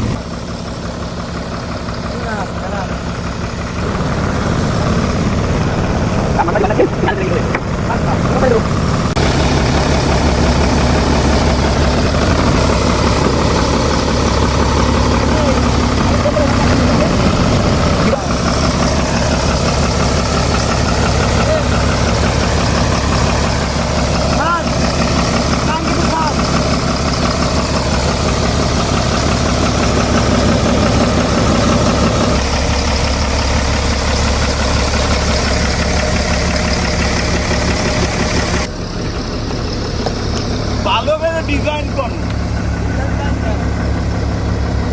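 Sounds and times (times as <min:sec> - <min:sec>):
heavy machine engine idling: 0:00.0 - 0:44.9.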